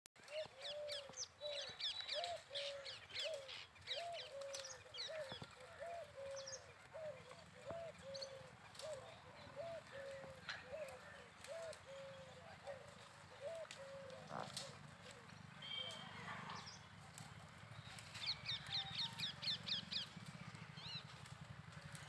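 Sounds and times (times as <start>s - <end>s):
small birds chirping high: 0.2s - 12.3s.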